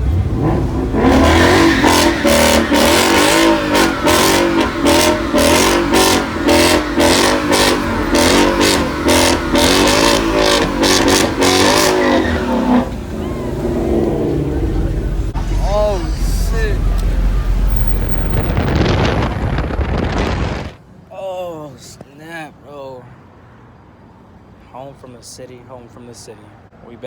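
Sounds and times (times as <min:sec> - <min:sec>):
car engine revving: 0:00.0 - 0:20.8.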